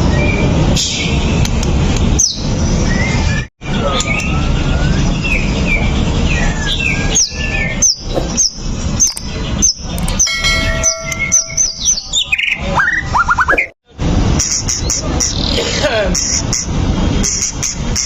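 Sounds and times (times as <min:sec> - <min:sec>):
bird singing whistled notes: 0:04.0 - 0:13.6.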